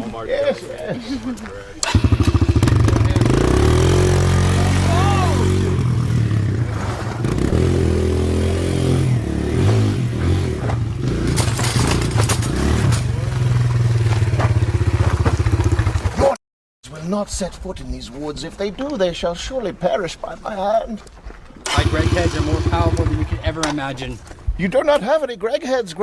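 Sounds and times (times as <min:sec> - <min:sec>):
dirt bike engine revving: 0:01.8 - 0:16.4, 0:21.6 - 0:24.0.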